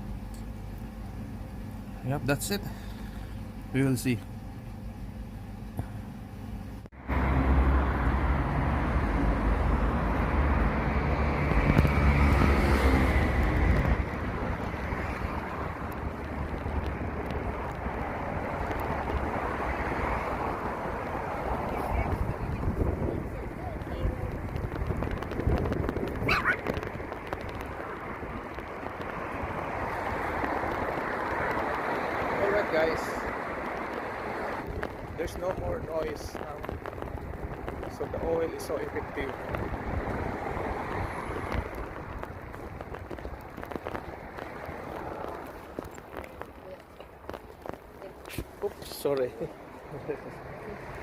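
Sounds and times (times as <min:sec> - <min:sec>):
road noise: 0:00.0 - 0:51.0
electric scooter tyres and air rushing: 0:06.9 - 0:51.0
wind on microphone: 0:08.7 - 0:32.5, 0:33.2 - 0:48.6.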